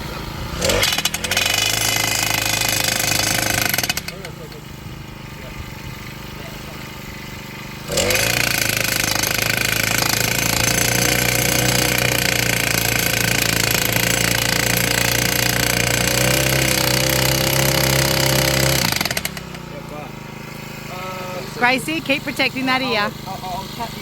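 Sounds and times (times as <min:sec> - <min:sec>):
post driver pounding fence post: 0:00.6 - 0:04.7, 0:07.8 - 0:19.7.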